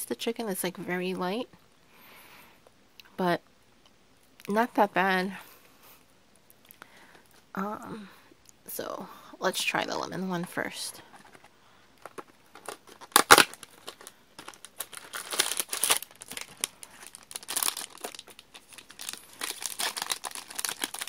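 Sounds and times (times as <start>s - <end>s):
wrapper crinkling: 11.1s - 21.0s
snack packaging tearing: 12.6s - 21.0s.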